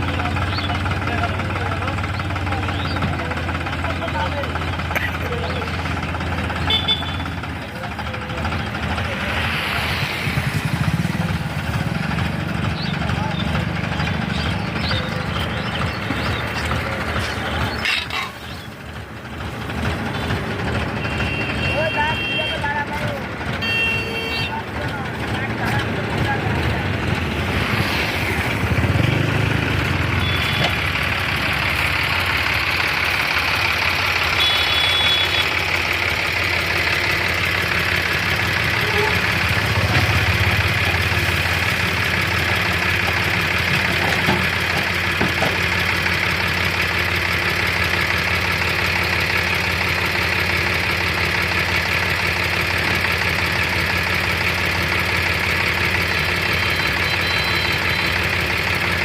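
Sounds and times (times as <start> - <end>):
tractor diesel engine idling: 0.0 - 59.0.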